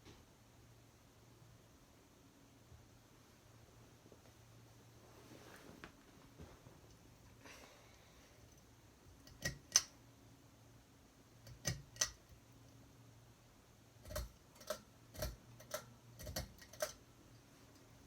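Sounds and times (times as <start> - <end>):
ceiling fan humming: 0.0 - 18.0
sharp clicks: 11.4 - 12.4.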